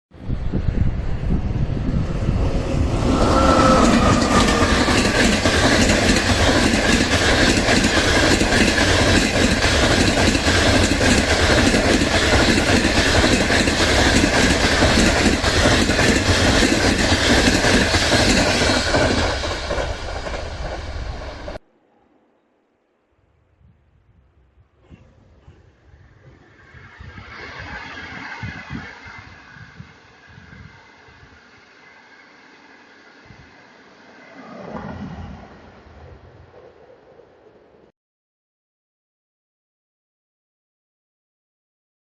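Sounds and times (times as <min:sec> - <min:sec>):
train wheels clattering over rails: 0:02.4 - 0:21.6.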